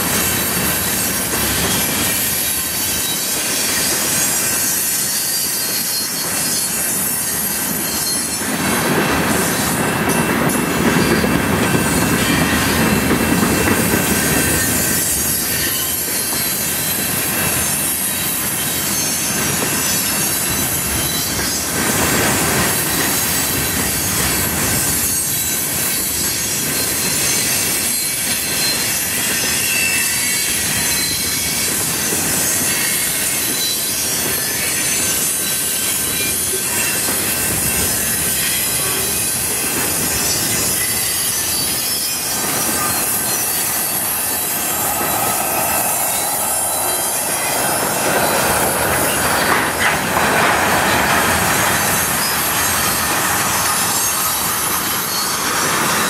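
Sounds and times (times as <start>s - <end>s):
freight train wheels on rail: 0.0s - 56.0s
clatter over rail joints: 47.4s - 55.0s.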